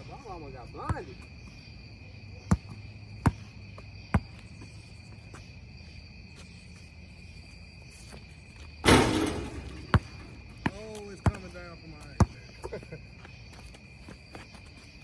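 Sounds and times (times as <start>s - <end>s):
insects chirring: 0.0s - 15.0s
basketball bouncing on court: 2.4s - 4.5s, 8.8s - 12.4s.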